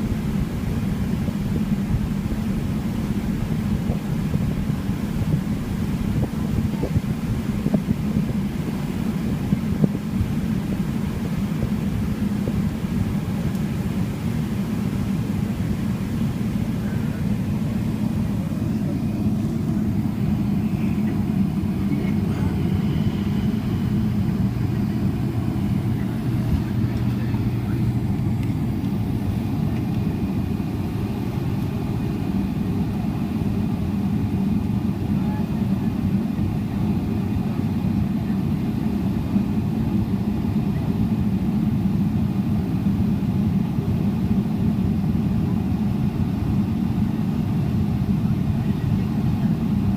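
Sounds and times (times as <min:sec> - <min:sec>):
jet engine rumble in cabin: 0:00.0 - 0:49.9.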